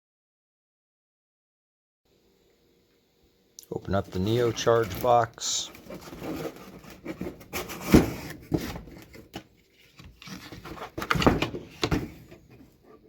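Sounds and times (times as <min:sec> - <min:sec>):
box unpacking rustling: 0:04.0 - 0:12.8.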